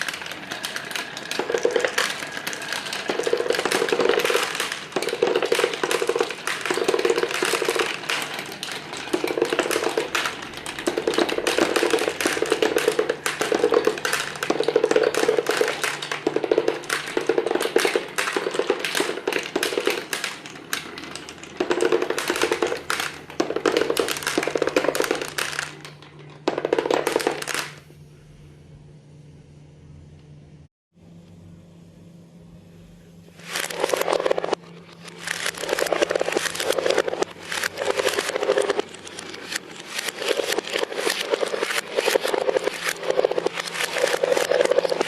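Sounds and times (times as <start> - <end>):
marbles clattering down track: 0.0 - 27.8, 33.4 - 45.0
rolling rumble: 0.0 - 27.8.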